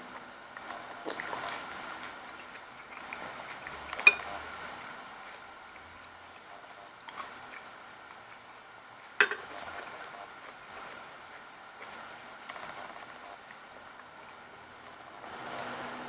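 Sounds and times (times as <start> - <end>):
spoon clinking against dish: 3.9 - 4.4, 9.2 - 9.5.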